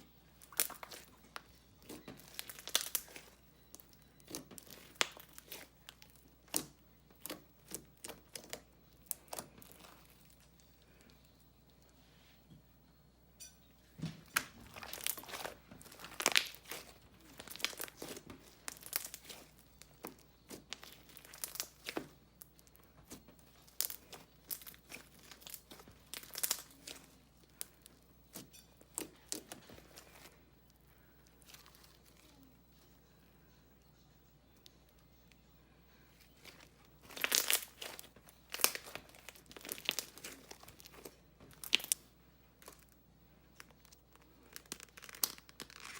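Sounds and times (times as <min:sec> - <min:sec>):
slime wet pops and crackles: 0:00.4 - 0:10.5, 0:14.3 - 0:30.3, 0:36.4 - 0:42.9.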